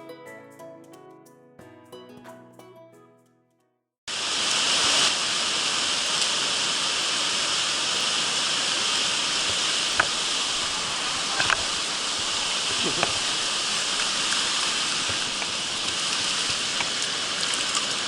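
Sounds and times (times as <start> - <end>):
stream rushing over rocks: 4.1 - 18.0.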